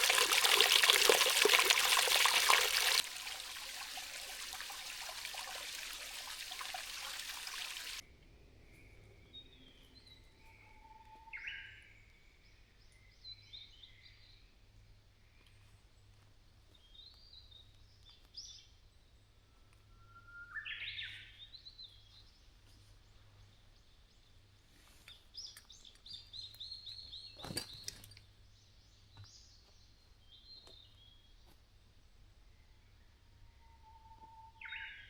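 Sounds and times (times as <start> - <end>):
songbirds chirping and whistling: 19.6 - 23.6.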